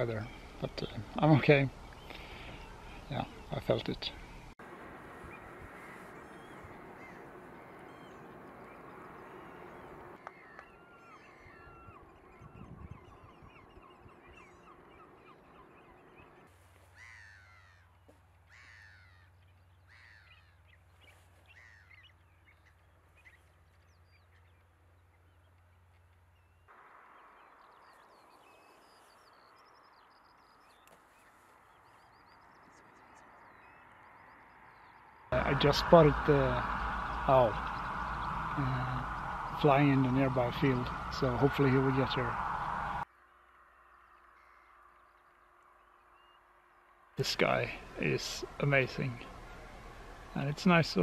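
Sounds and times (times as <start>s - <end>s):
birds chirping: 0.0s - 51.0s
low rushing noise: 35.3s - 43.9s
low steady hum: 35.3s - 51.0s.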